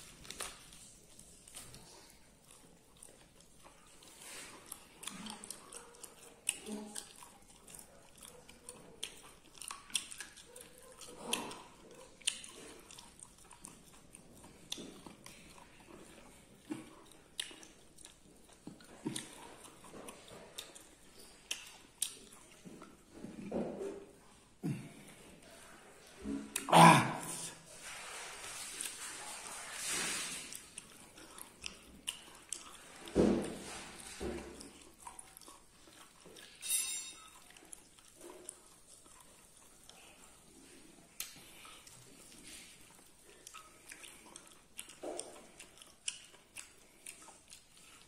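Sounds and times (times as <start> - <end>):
person chewing with wet smacks: 0.0 - 48.0.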